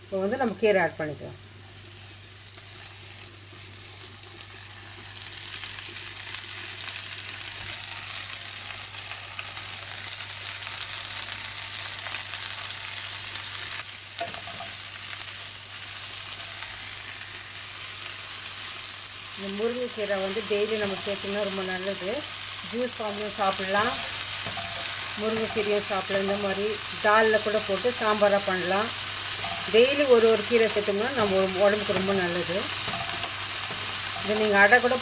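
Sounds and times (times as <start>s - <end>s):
onions sizzling in a frying pan: 0.0s - 35.0s
stirring in a pan: 23.6s - 25.9s, 28.9s - 35.0s.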